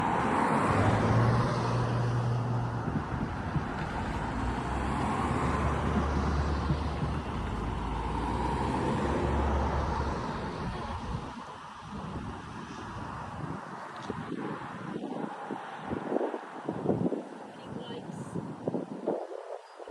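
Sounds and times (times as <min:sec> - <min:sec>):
locomotive engine drone: 0:00.0 - 0:12.4
wheels rumbling on rail: 0:00.0 - 0:12.4.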